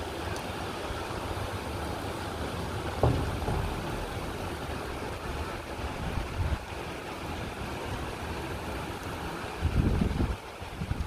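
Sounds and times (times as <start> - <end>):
gusting wind: 0.0 - 11.0
heavy rain pouring: 0.0 - 11.0
low gusty rumbles: 2.7 - 8.0
sharp thump: 3.0 - 5.6.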